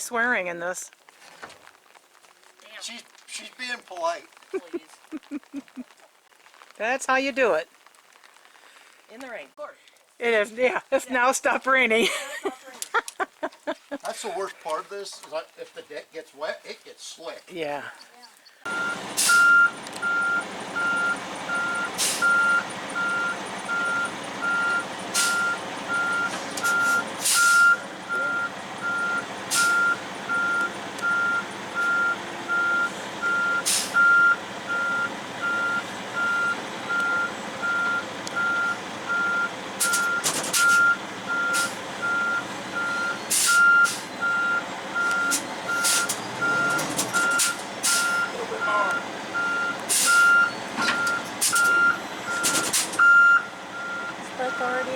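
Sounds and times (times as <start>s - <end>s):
diesel engine hum: 18.7s - 54.9s
truck backup alarm beeping: 18.7s - 54.9s.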